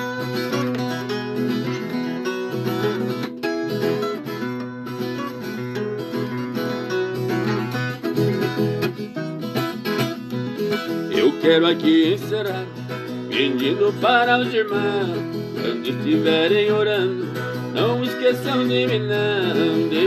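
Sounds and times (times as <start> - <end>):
folk guitar plucked and strummed: 0.0 - 20.0
person singing: 10.5 - 20.0.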